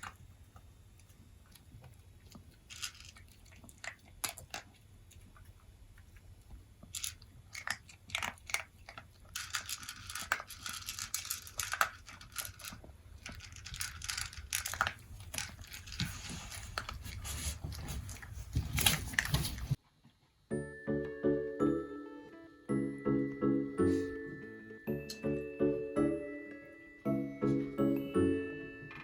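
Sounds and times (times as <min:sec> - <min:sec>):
dog crunching and chewing food: 0:00.0 - 0:20.4.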